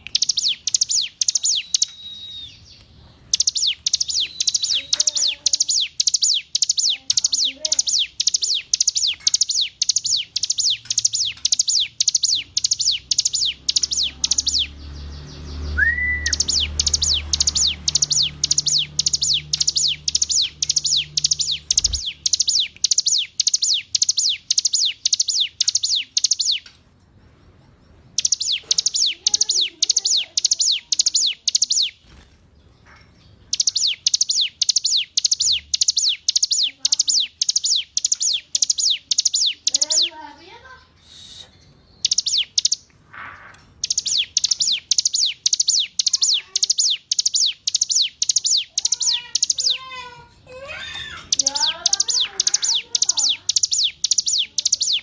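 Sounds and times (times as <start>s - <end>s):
bird singing high down-slurred notes: 0.0s - 26.6s, 28.2s - 32.2s.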